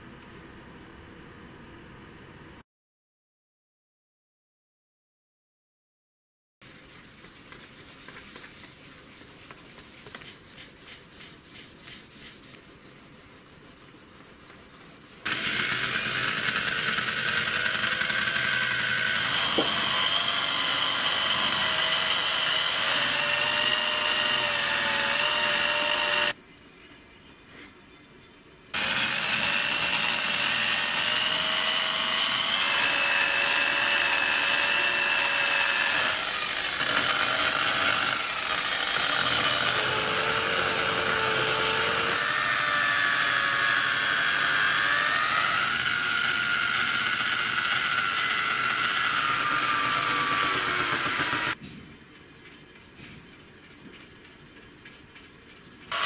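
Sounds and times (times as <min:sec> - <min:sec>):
power tool whining: 0:15.2 - 0:26.4, 0:28.7 - 0:51.6.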